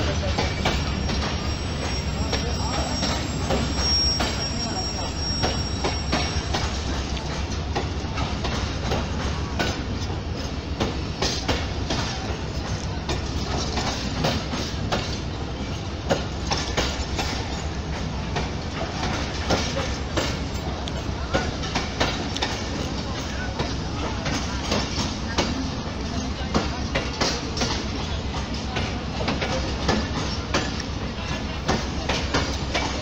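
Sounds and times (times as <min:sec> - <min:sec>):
train wheels clicking over rail joints: 0:00.0 - 0:33.0
thin high squeal: 0:00.8 - 0:06.6.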